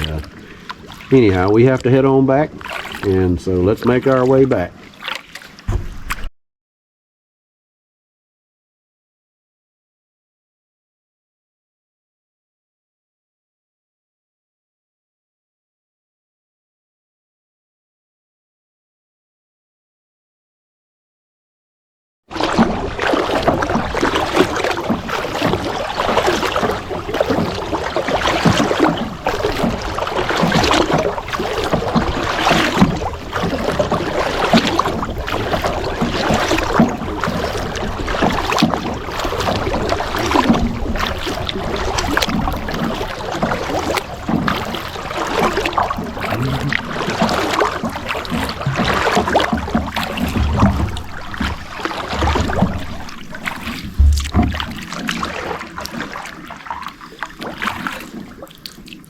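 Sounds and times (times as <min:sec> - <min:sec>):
paddle strokes splashing water: 0:00.0 - 0:06.3, 0:22.3 - 0:59.0.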